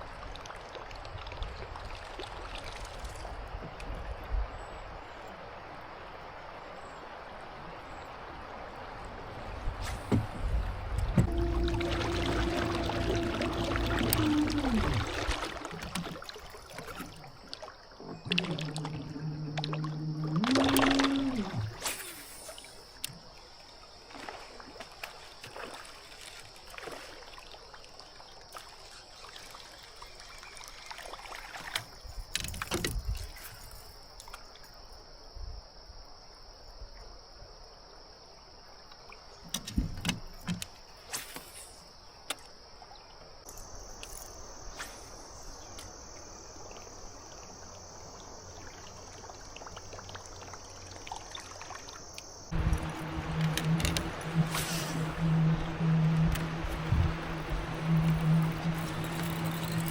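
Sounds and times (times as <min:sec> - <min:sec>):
water trickling: 0:07.9 - 0:21.8, 0:45.2 - 0:59.9
thin high whine: 0:11.2 - 0:15.1, 0:52.5 - 0:59.9
dull low thumps: 0:52.5 - 0:59.0.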